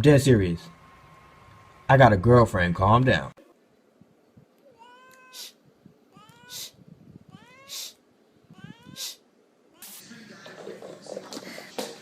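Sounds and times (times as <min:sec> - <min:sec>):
cat meowing: 0:04.6 - 0:10.0.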